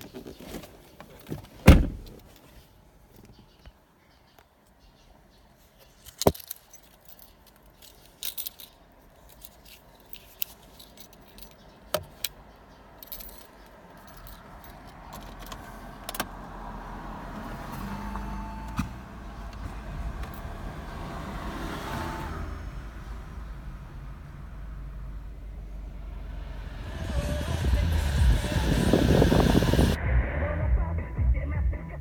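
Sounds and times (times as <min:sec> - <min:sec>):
car engine and road rumble: 0:00.0 - 0:32.0
keys jangling: 0:05.9 - 0:12.4, 0:13.0 - 0:15.6.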